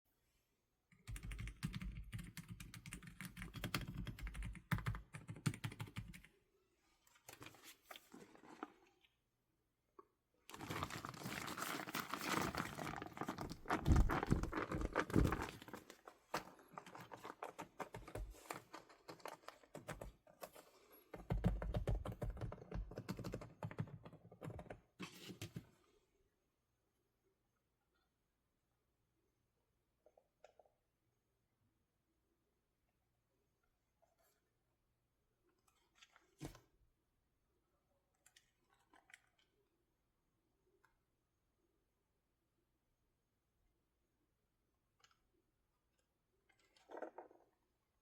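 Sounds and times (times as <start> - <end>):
fast typing on computer keyboard: 1.0 - 6.3, 16.8 - 20.2, 21.2 - 24.8.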